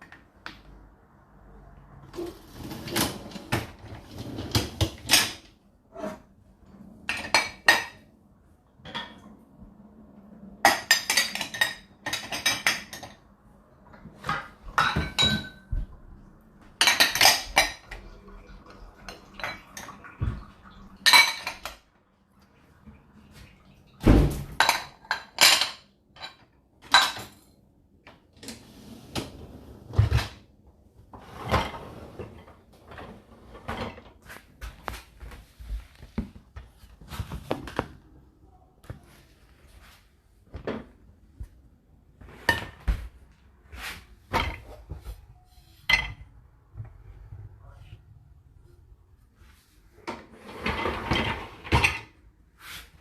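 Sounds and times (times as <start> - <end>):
dishes and cutlery clattering: 2.2 - 5.5, 7.0 - 8.1, 8.8 - 9.4, 10.6 - 13.3, 14.1 - 15.8, 16.8 - 21.8, 24.3 - 27.6, 42.4 - 43.0, 45.8 - 46.3, 50.1 - 52.2.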